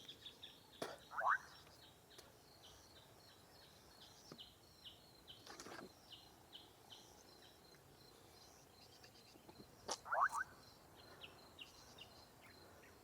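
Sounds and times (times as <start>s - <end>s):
rustle: 0.0s - 13.0s
frogs chirping: 0.8s - 1.7s, 9.8s - 13.0s.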